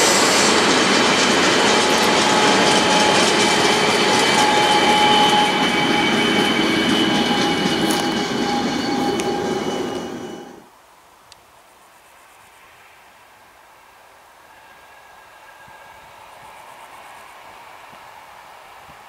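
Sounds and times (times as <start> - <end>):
train wheels rumbling on rails: 0.0 - 10.7
thin squealing tones: 0.6 - 10.6.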